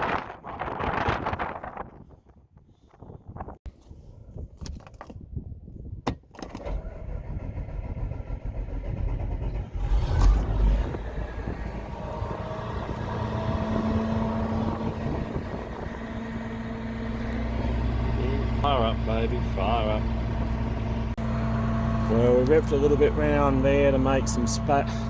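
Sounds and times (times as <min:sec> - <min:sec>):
diesel engine starting and running: 0:06.4 - 0:25.0.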